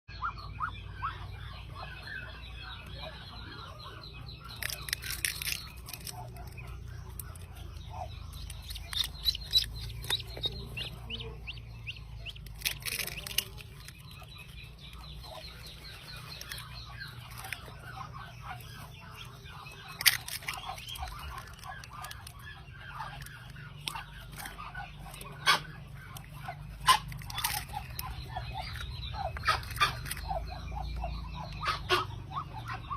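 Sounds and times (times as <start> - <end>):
ducklings peeping: 0.1 - 32.9
sharp clicks: 4.3 - 15.2.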